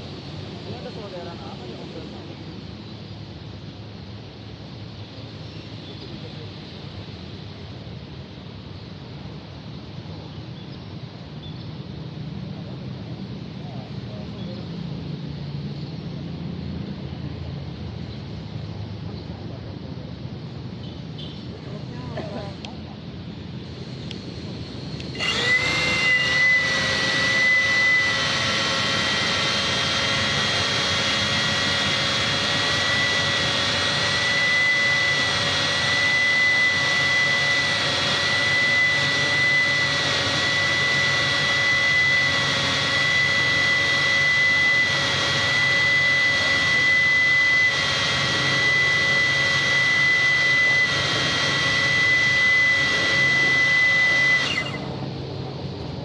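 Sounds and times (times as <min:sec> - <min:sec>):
quadcopter motors whining: 0:21.2 - 0:56.0.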